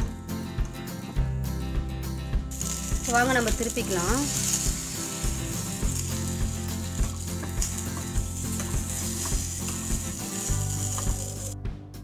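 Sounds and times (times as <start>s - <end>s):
omelette sizzling in oil: 2.5s - 11.6s.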